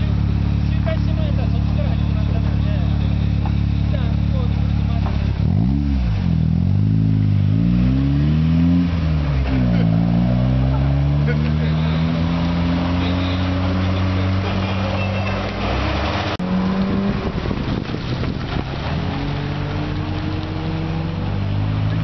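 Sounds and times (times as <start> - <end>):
car engines running at low revs: 0.0 - 22.0.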